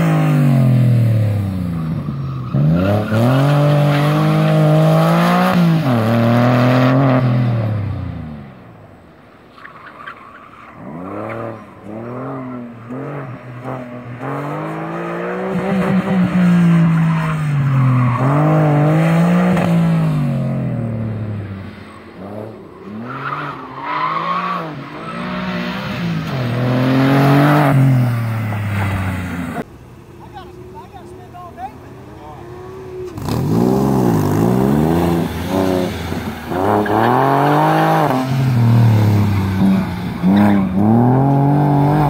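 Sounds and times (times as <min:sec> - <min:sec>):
car engine revving hard: 0:33.2 - 0:42.0.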